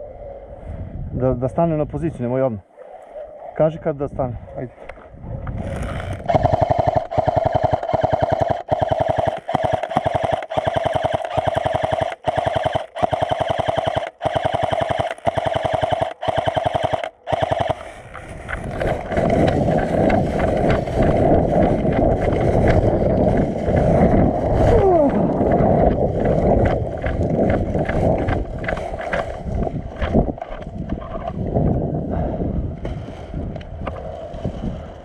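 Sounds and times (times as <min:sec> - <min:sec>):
gun motor whine: 0:05.8 - 0:17.8
airsoft gun full-auto bursts: 0:06.2 - 0:18.0.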